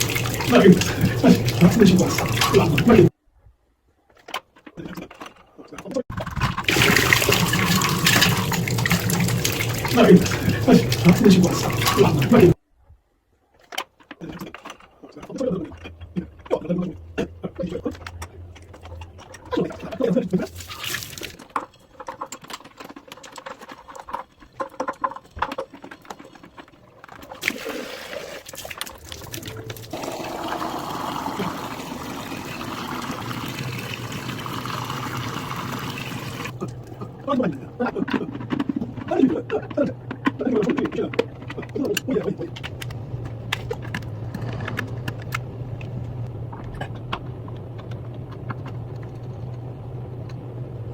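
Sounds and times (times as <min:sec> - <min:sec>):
water running: 0:00.0 - 0:03.1, 0:06.4 - 0:12.6, 0:17.5 - 0:21.5, 0:27.2 - 0:39.2.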